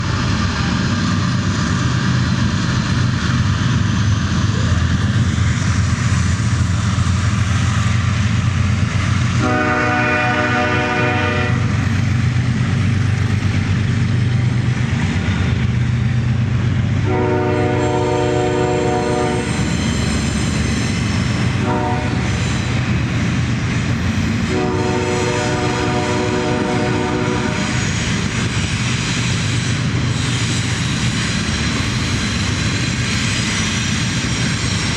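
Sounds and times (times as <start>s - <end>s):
locomotive engine drone: 0.0s - 34.9s
locomotive air horn: 9.4s - 11.8s, 17.0s - 19.7s, 21.6s - 22.4s, 24.4s - 27.9s.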